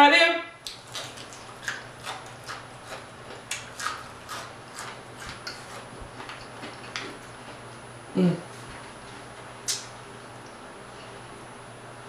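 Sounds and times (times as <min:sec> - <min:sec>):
crunchy chewing: 0:00.6 - 0:07.9.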